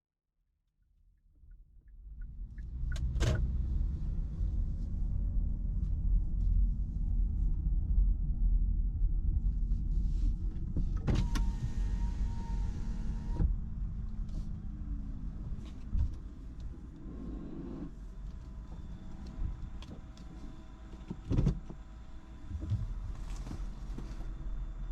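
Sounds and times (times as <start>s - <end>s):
power window motor whining: 11.0s - 13.5s.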